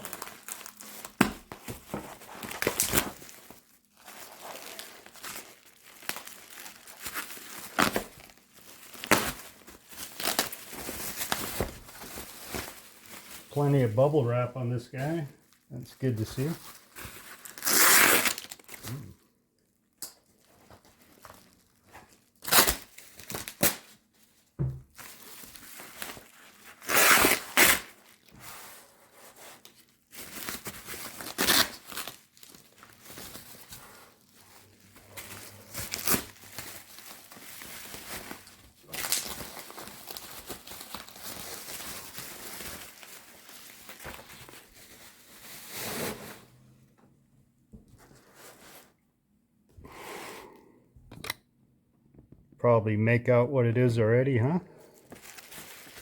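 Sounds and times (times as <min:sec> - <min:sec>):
bubble wrap crinkling and tearing: 0:00.0 - 0:14.1, 0:15.0 - 0:19.2, 0:20.2 - 0:46.6, 0:48.2 - 0:49.0, 0:54.7 - 0:56.0.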